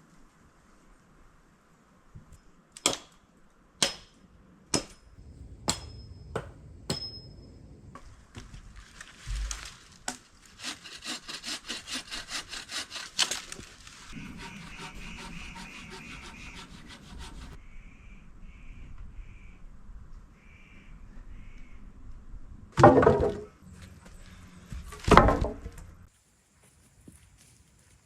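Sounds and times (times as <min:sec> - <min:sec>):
saw cutting through wood: 0:10.4 - 0:17.6.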